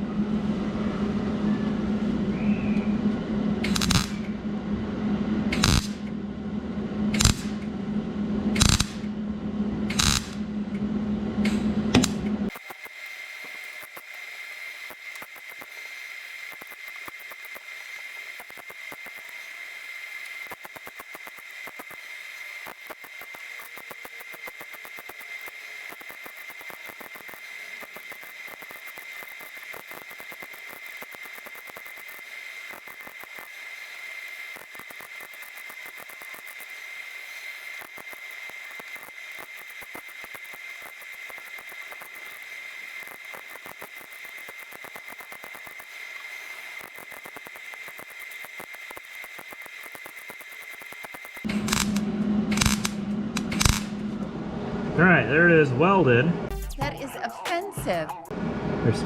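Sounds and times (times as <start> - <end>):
steady high whine: 0.0 - 59.0
electric welder crackling: 3.6 - 4.4, 5.5 - 6.1, 7.1 - 7.7, 8.5 - 9.2, 9.9 - 10.7, 11.4 - 54.3.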